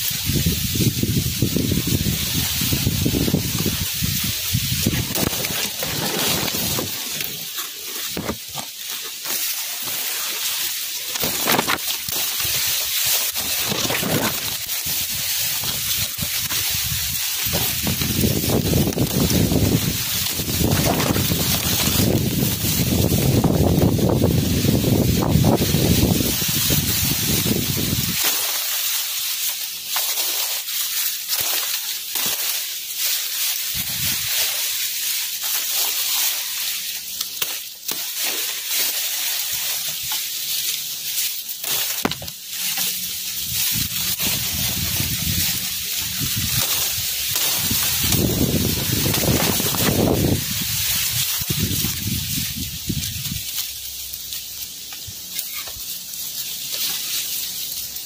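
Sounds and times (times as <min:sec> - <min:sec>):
wind gusting on microphone: 0:00.0 - 0:07.0, 0:13.7 - 0:28.2, 0:43.4 - 0:53.4
crackling rustles: 0:00.0 - 0:58.0
steady hiss: 0:00.0 - 0:58.0.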